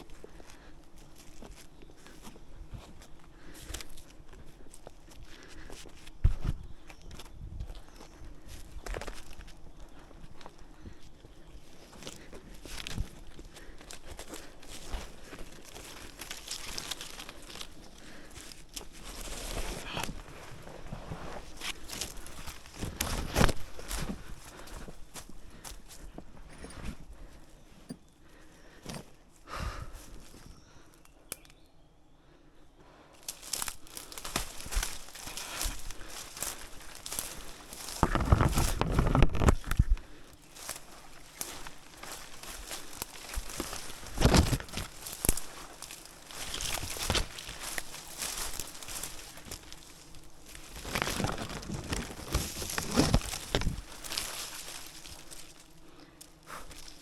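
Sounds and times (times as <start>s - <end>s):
crinkling and rustling: 0.0s - 28.0s, 33.2s - 57.0s
clothing rustling: 40.8s - 49.1s, 50.1s - 55.2s.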